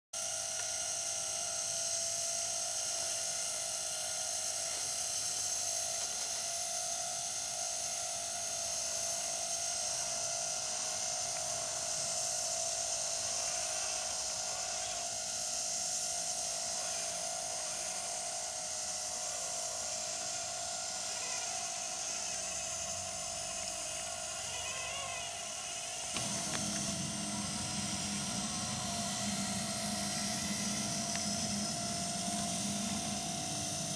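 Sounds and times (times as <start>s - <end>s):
small electric motors whining: 0.2s - 33.9s
low hum: 8.8s - 33.9s.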